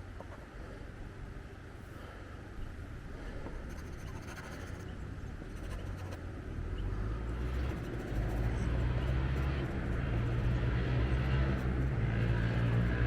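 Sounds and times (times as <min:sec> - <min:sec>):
pencil scratching on paper: 0:03.7 - 0:04.8, 0:05.5 - 0:06.2, 0:07.4 - 0:09.5.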